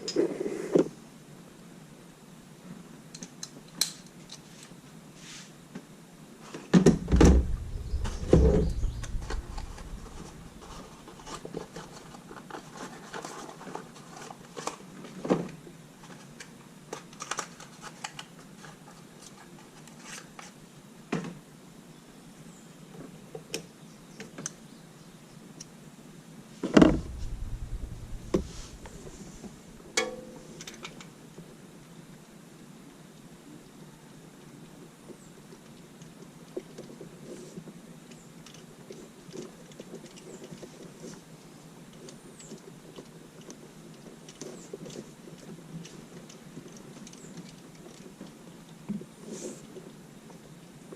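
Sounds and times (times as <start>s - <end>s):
heavy thumps: 6.8s - 11.3s, 26.8s - 30.0s.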